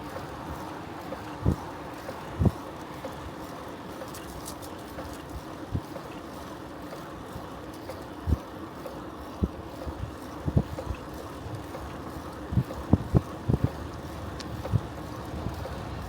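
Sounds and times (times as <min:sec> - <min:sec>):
bicycle rolling: 0:00.0 - 0:16.0
wind buffeting microphone: 0:09.4 - 0:16.0
wind noise: 0:12.5 - 0:16.0.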